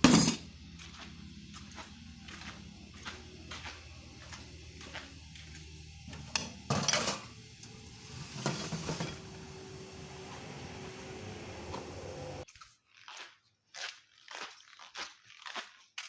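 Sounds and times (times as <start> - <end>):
dishes and utensils clinking: 0.0 - 0.5, 6.1 - 7.4, 8.2 - 9.2.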